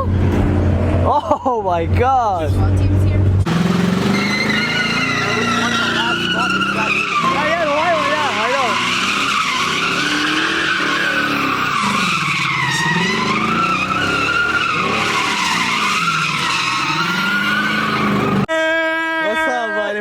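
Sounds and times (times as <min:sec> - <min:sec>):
car engine revving: 0:00.0 - 0:18.5
car tyres squealing: 0:03.4 - 0:18.5.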